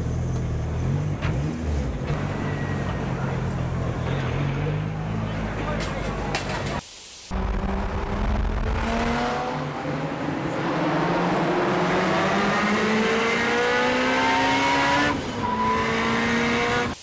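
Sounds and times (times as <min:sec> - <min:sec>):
car engine accelerating hard: 0:07.4 - 0:17.0.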